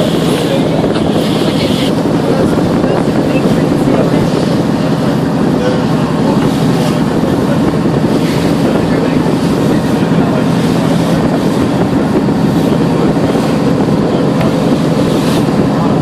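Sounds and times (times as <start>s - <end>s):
boat engine humming: 0.0s - 16.0s
wind buffeting microphone: 0.0s - 16.0s.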